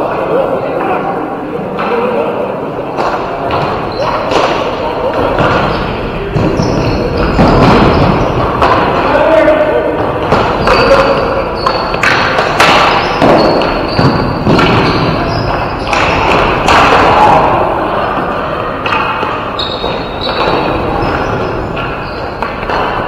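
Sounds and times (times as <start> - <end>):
sticks and ball thudding: 2.9 - 17.6, 18.6 - 23.0
short high squeaks: 19.6 - 20.4.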